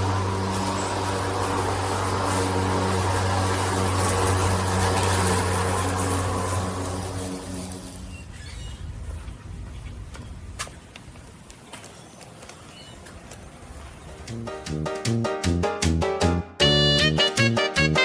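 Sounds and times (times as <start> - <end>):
electric lawn mower humming: 0.0 - 8.1.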